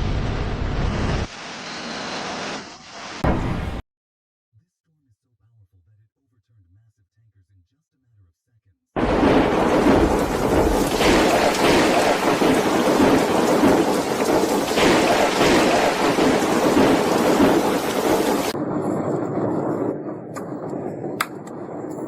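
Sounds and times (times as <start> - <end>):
heavy rain downpour: 9.0 - 18.6.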